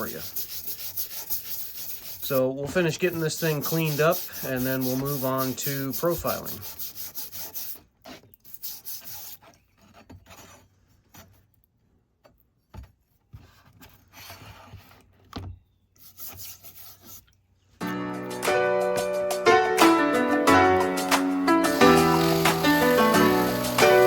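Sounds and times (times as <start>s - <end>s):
brush scrubbing metal: 0.0s - 11.3s, 21.1s - 24.0s.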